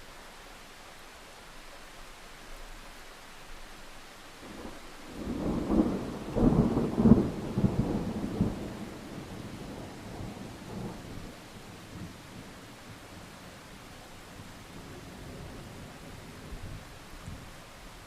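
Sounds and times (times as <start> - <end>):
steady rain: 0.0 - 18.0
thunder rumbling: 4.4 - 13.4.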